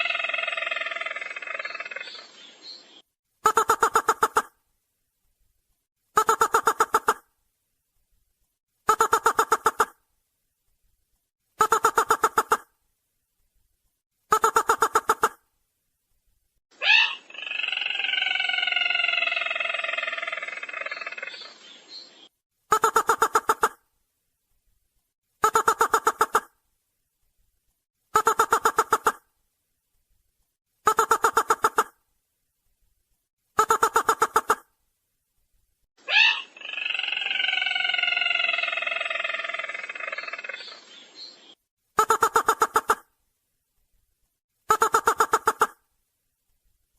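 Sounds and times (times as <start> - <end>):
bird call pulsing and falling: 0.0 - 3.0, 16.8 - 23.8, 36.0 - 41.6.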